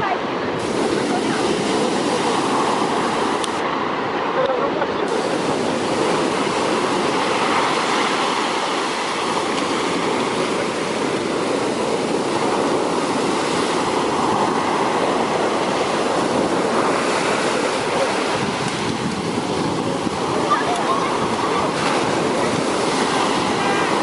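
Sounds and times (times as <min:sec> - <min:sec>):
sea waves breaking on shore: 0:00.0 - 0:24.0.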